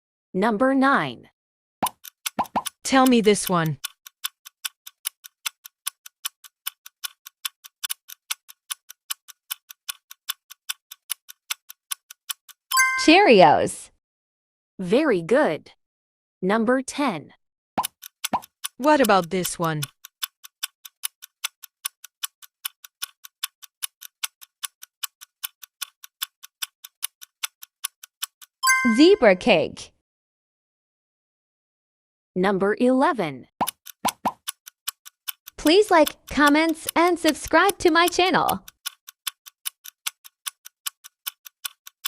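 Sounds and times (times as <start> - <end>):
clock ticking: 1.8 - 13.2, 17.8 - 29.2, 33.6 - 42.0.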